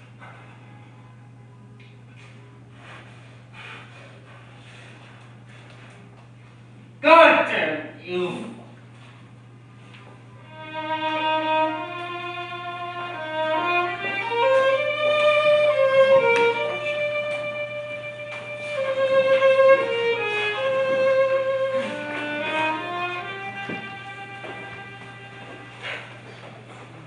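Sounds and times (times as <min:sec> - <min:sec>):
steady low hum: 0:00.0 - 0:27.0
solo violin slow melody: 0:10.4 - 0:25.8.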